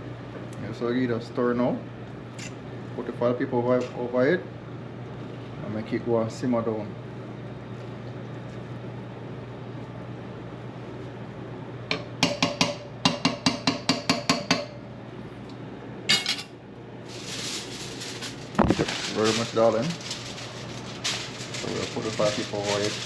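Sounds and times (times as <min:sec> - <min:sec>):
metal taps on a cooking pot: 0:11.9 - 0:14.7.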